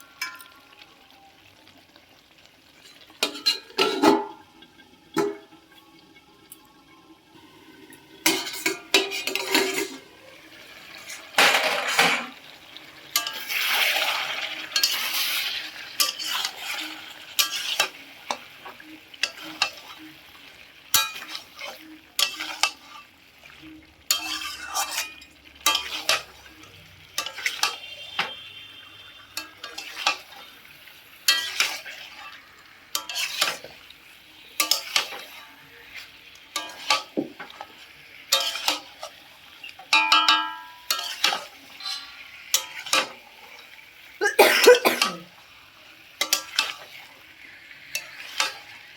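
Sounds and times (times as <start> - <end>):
food sizzling in a pan: 0.0 - 48.9
spoon scraping and clinking on pan: 2.8 - 4.4, 8.2 - 10.0, 13.1 - 20.0, 20.9 - 23.1, 24.1 - 26.6, 27.2 - 28.5, 29.4 - 30.5, 31.2 - 33.8, 34.5 - 43.8, 46.2 - 47.0, 47.8 - 48.9.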